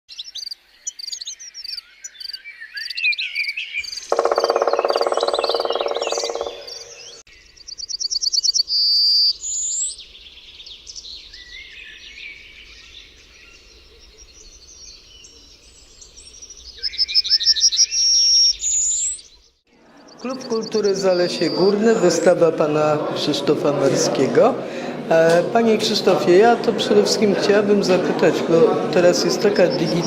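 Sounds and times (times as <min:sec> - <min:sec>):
birds singing and chirping: 0:00.1 - 0:22.5, 0:29.1 - 0:30.0
low buzzing bird call: 0:04.1 - 0:07.2.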